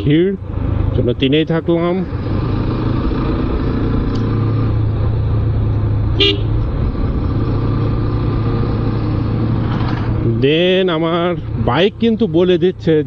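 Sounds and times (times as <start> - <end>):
vehicle horn toot: 0.0 - 0.3, 6.0 - 6.8
motorcycle engine running: 0.0 - 13.0
wind and road noise: 0.0 - 13.0.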